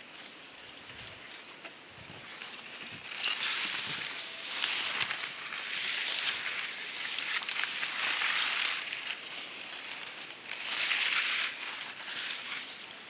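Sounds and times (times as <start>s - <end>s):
rustling and crackling: 1.3s - 13.0s.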